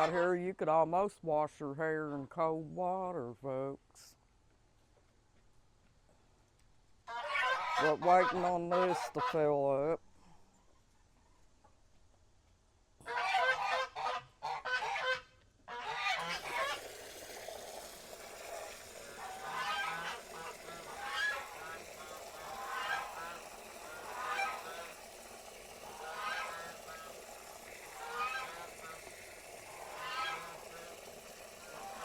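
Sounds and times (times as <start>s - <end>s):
geese honking: 7.1s - 9.4s, 13.1s - 16.9s, 18.9s - 32.0s.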